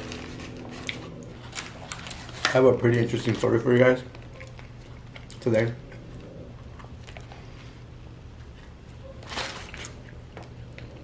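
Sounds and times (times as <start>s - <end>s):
wet chewing: 0.0s - 2.5s, 3.1s - 8.8s
low steady hum: 0.0s - 11.0s.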